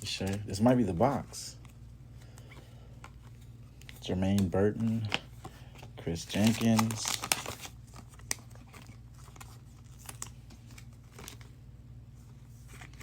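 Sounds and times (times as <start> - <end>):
cards being flipped through: 0.0 - 11.5, 12.6 - 13.0
low steady hum: 0.0 - 13.0
wrapper crinkling: 6.1 - 11.5.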